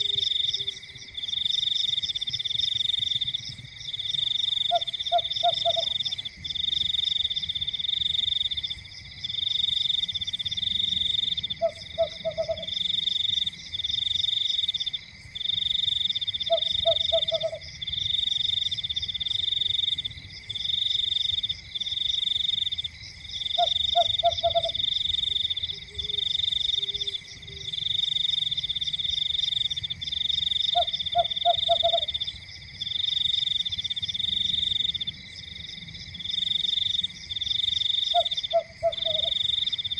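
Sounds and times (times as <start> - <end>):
low frog croak: 0.0 - 8.5, 10.5 - 14.8, 16.3 - 18.6, 23.4 - 35.0, 37.4 - 39.9
frogs trilling: 0.0 - 39.9.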